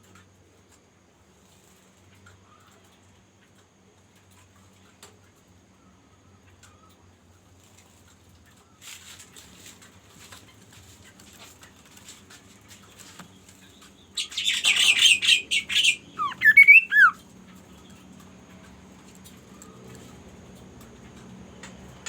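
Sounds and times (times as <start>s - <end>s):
bird rasping chatter: 14.2s - 17.2s
bird whistled notes: 14.2s - 17.2s
light ticking and rustling: 17.3s - 22.0s.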